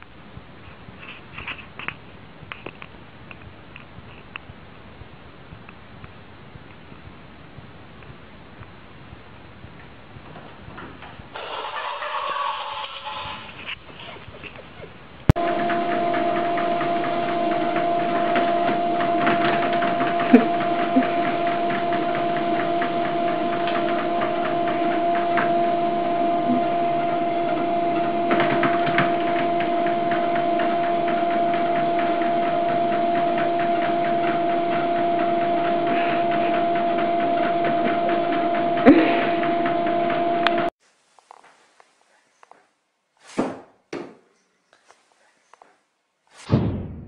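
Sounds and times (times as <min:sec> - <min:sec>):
treadmill motor and belt hum: 0:15.4 - 0:40.7.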